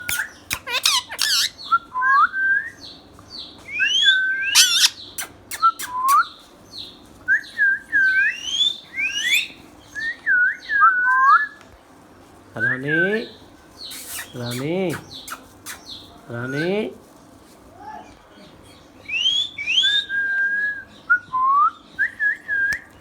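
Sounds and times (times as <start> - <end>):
parakeet screeches: 0.1 - 1.6, 4.5 - 5.1
parakeet whistled notes: 3.8 - 6.2.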